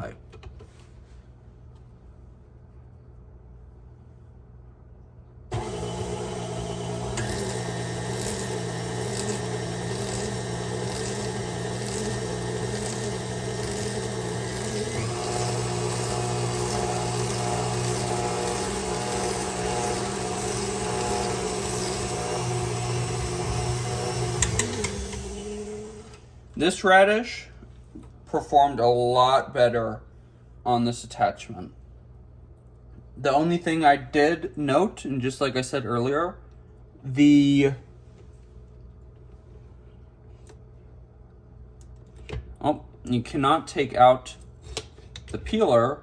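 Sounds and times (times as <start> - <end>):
stand mixer motor running: 5.5 - 26.2.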